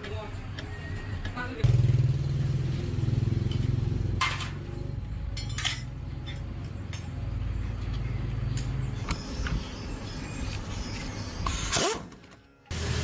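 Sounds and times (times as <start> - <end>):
metallic clinks of tools: 5.2 - 7.2.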